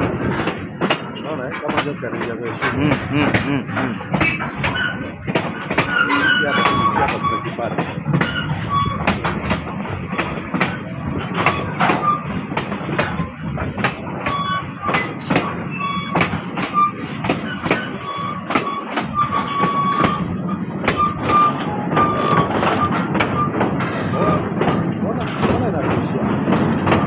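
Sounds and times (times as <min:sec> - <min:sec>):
train rumbling on rails: 0:00.0 - 0:27.0
high wheel squeals: 0:04.0 - 0:13.4, 0:14.0 - 0:24.5.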